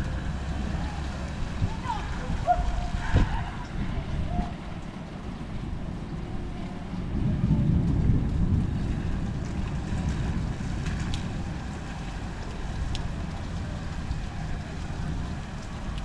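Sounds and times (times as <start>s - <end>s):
distant thunder rumbling: 7.0s - 16.0s.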